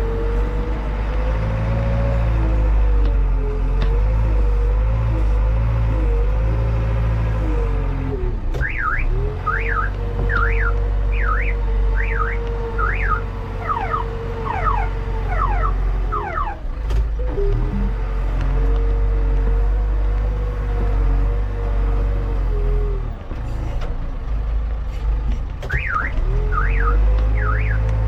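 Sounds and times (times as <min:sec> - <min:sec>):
diesel engine running: 0:00.0 - 0:28.0
electronic alarm warbling: 0:09.5 - 0:16.6.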